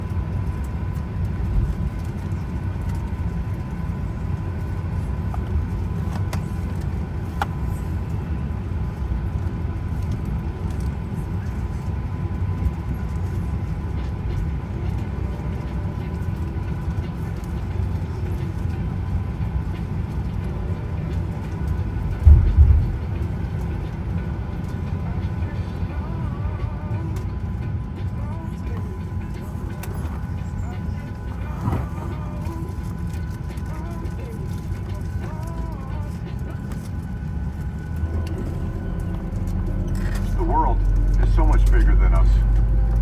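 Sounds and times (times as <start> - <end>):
air-conditioning rumble: 0.0 - 43.0
faint steady whine: 0.0 - 43.0
thump: 22.3 - 22.9.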